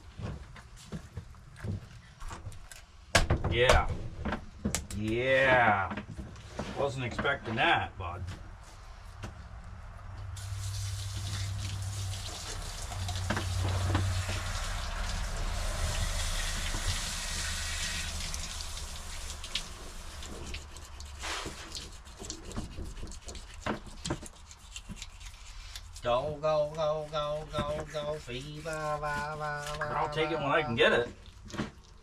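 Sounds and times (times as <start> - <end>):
water running from a tap: 10.4 - 24.2.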